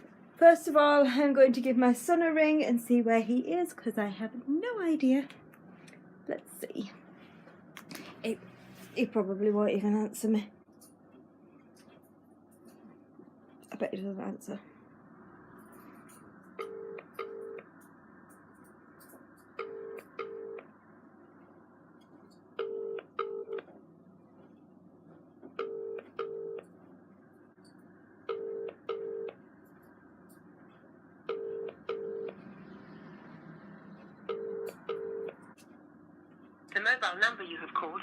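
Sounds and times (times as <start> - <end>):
telephone ringback tone: 19.6 - 20.6, 25.6 - 26.6, 28.3 - 29.3, 31.3 - 32.4, 34.3 - 35.3.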